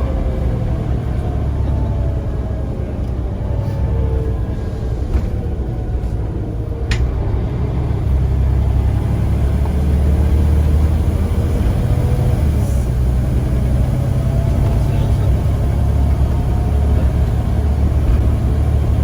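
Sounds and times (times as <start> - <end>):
bus diesel engine rumbling: 0.0 - 19.0.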